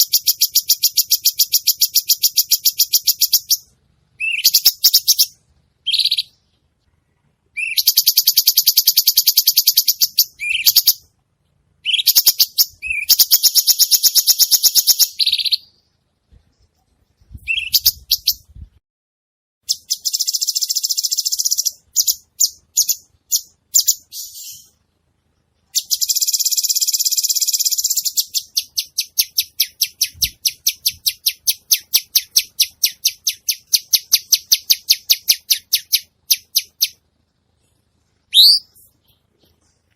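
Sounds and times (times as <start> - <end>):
bird singing high pulsed phrases: 0.0 - 11.0, 11.8 - 16.1, 25.8 - 37.3.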